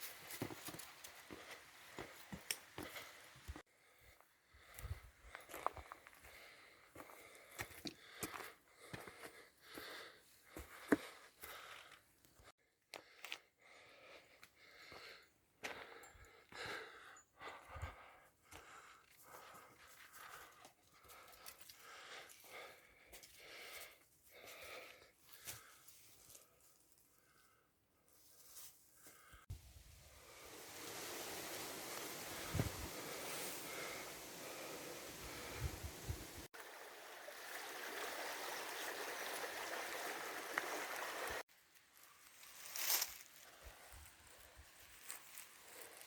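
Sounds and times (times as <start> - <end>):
person breathing hard: 2.8 - 26.5, 32.2 - 36.5
rushing water: 29.6 - 41.4.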